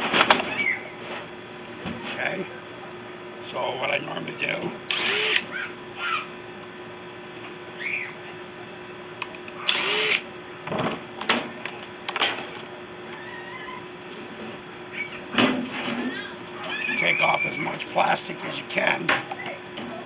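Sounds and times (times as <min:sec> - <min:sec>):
faint hum: 0:00.0 - 0:20.0
power drill burst: 0:04.9 - 0:05.5, 0:09.6 - 0:10.3.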